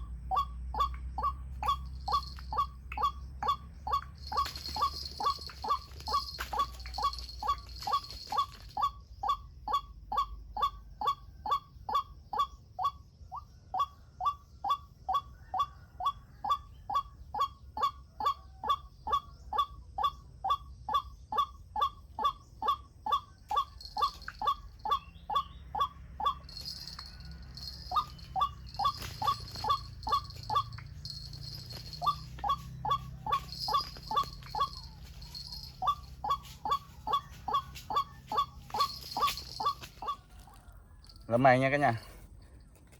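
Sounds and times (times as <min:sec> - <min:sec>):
waterhen calling: 0:00.0 - 0:10.3, 0:21.8 - 0:40.6.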